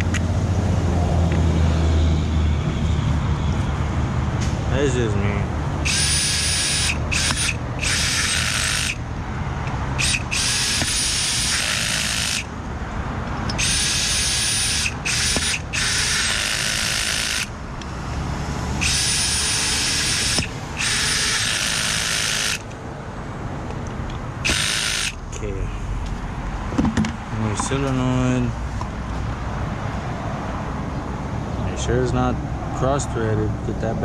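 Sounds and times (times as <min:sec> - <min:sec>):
power drill whining: 0:05.8 - 0:09.0, 0:10.0 - 0:12.5, 0:13.5 - 0:17.5, 0:18.8 - 0:22.7, 0:24.4 - 0:25.2.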